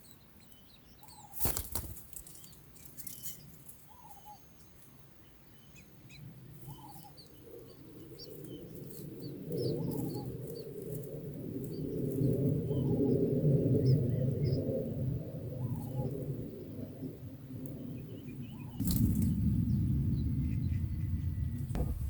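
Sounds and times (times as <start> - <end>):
birds chirping: 0.0 - 14.9, 17.8 - 22.0
low rushing noise: 19.0 - 22.0.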